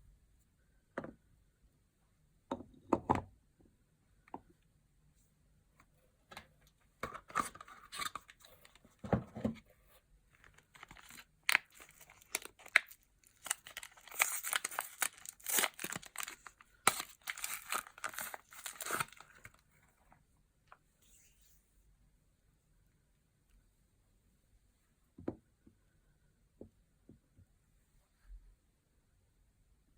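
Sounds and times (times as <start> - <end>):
packaging crinkling and tearing: 10.5 - 19.6.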